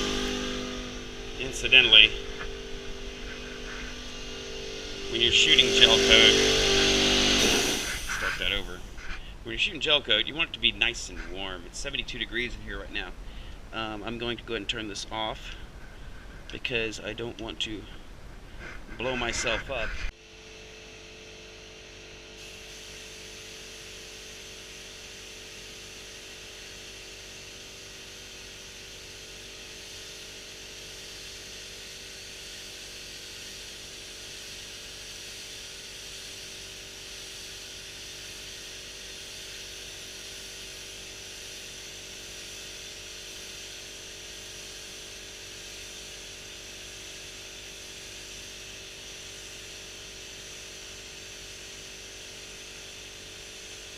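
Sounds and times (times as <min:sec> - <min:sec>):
spray gun air hiss: 0:00.0 - 0:09.2, 0:22.4 - 0:53.9
steady low hum: 0:00.0 - 0:53.9.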